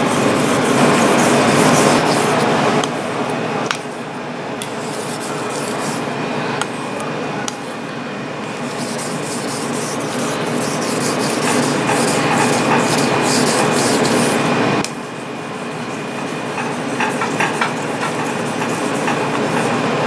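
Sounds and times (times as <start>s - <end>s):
knife rubbing on whetstone: 0.0s - 2.6s, 4.7s - 6.1s, 8.6s - 14.4s, 16.0s - 20.0s.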